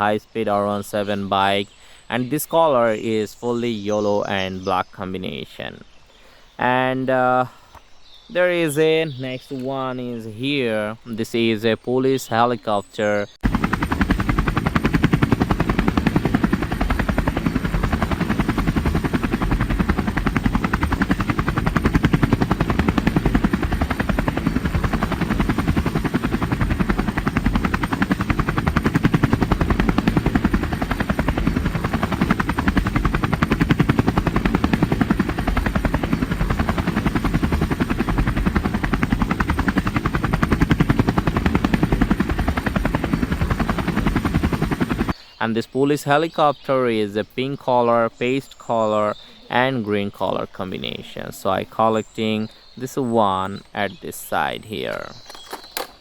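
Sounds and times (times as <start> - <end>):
helicopter rotor: 13.4 - 45.2, 54.9 - 56.0.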